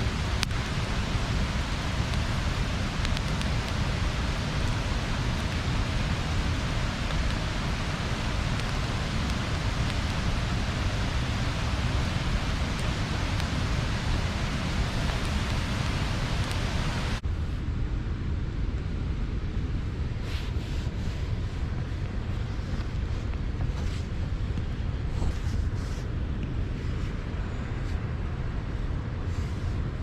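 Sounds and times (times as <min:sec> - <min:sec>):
river water rushing over weir: 0:00.0 - 0:17.2.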